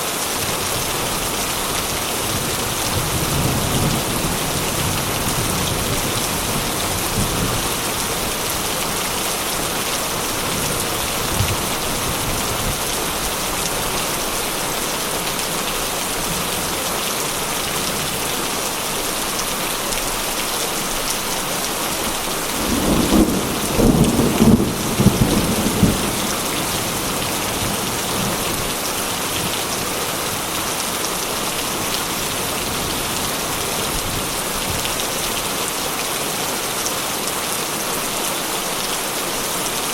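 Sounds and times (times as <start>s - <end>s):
heavy rain: 0.0s - 39.9s
thunder rumble: 22.1s - 28.8s.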